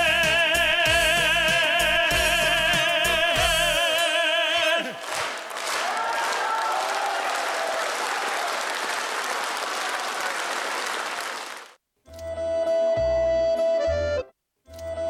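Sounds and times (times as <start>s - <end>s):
band accompaniment with steady beat: 0.0s - 4.0s
person singing with vibrato: 0.0s - 5.1s
audience applause: 5.0s - 11.8s.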